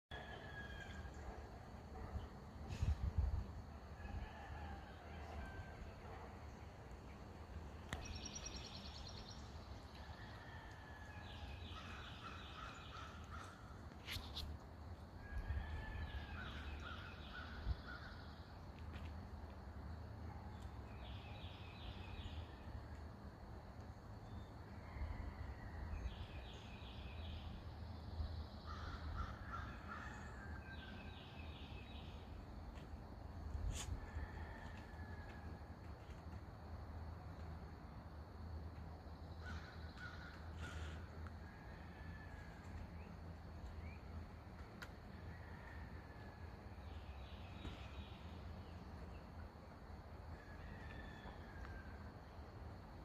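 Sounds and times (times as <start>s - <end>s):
songbirds singing: 6.3s - 10.4s.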